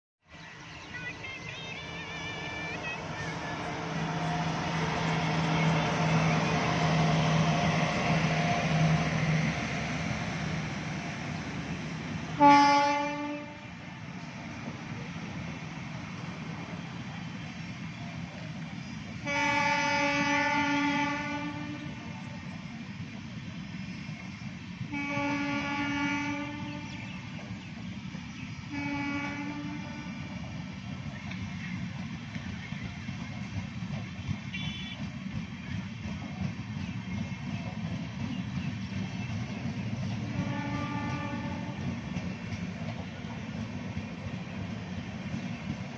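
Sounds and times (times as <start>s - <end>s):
train rushing past: 0.3s - 45.9s
train horn blast: 12.3s - 13.8s, 19.2s - 22.3s, 24.9s - 27.0s, 28.7s - 30.4s, 34.5s - 35.2s, 40.2s - 42.0s.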